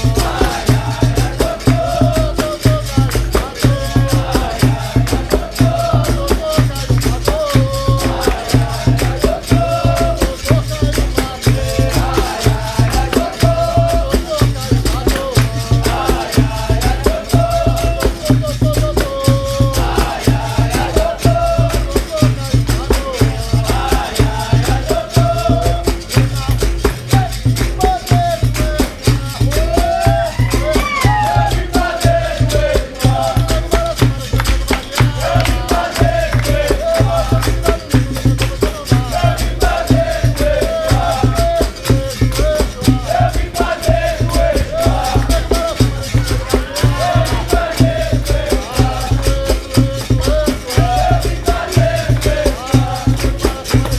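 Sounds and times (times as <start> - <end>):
berimbau rhythm: 0.0 - 53.9
group singing call-and-response: 0.0 - 53.9
shaker rattles: 0.0 - 53.9
tambourine jingles: 0.0 - 53.9.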